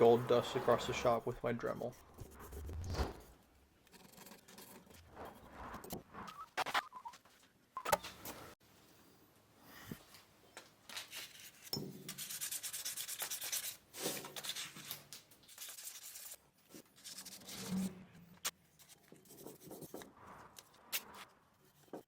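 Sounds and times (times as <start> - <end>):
sandpaper rubbing on a ring: 11.1 - 14.9, 15.5 - 17.8.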